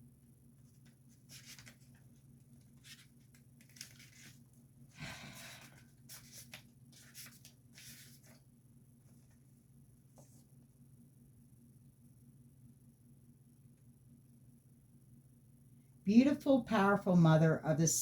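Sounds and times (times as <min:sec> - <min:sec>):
low steady hum: 0:00.0 - 0:18.0
paper rustling: 0:00.6 - 0:04.6, 0:05.4 - 0:10.5.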